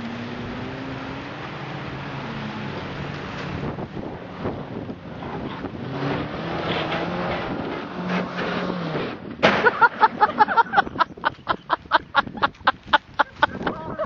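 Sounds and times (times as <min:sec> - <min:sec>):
car engine revving: 0:00.0 - 0:10.5.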